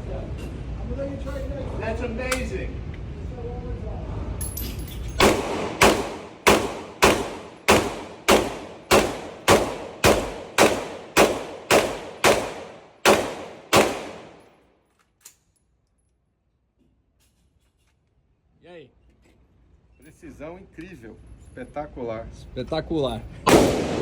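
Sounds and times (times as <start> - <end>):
pistol shots echoing: 5.2 - 14.5, 23.5 - 24.0.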